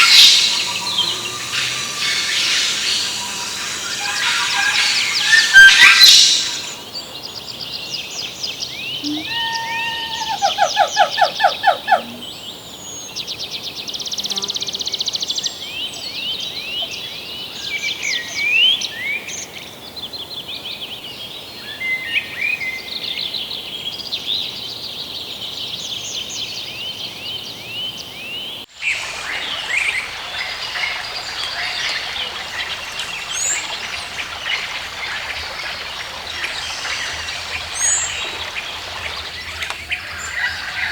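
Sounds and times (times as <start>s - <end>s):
birds chirping and singing: 0.0s - 6.8s, 8.2s - 13.0s
fast buzzy bird trill: 0.0s - 6.8s
running water rushing: 0.0s - 6.9s, 28.7s - 40.9s.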